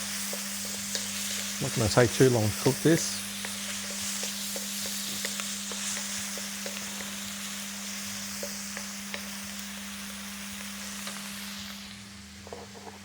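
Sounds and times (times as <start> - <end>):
onion and garlic sizzling in oil: 0.0 - 13.0
utensil clicking in pan: 0.2 - 1.6, 2.7 - 7.3, 8.3 - 9.7.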